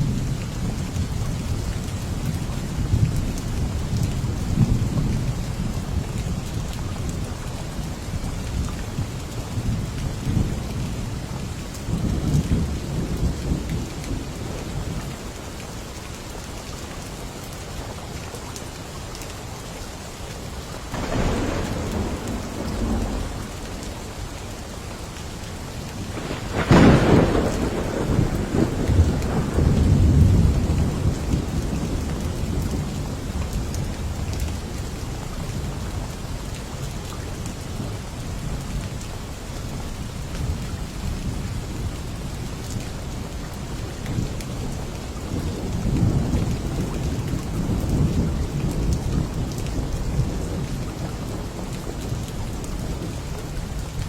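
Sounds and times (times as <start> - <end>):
steady rain: 0.0 - 54.0
sharp thunderclap: 20.9 - 24.4, 26.1 - 32.9
rolling thunder: 20.9 - 34.9, 44.1 - 53.8.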